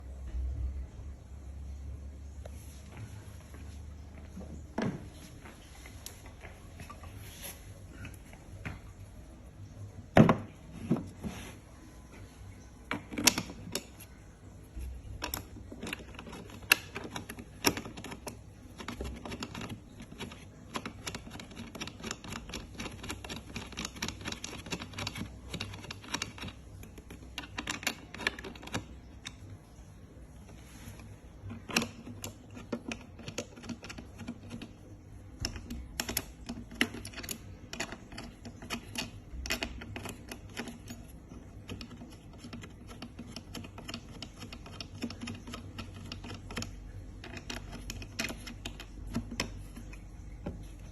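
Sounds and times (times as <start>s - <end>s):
parts clicking and knocking: 12.8s - 29.6s, 30.3s - 50.9s.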